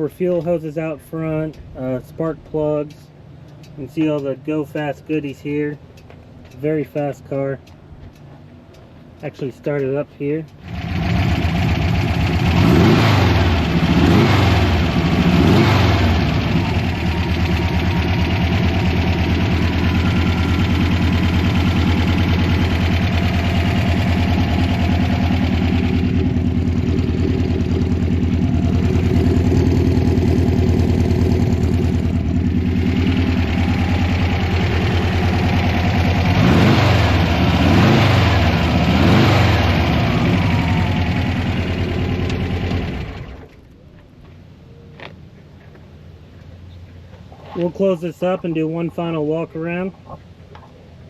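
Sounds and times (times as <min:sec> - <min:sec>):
car engine idling and revving: 0:10.5 - 0:43.8.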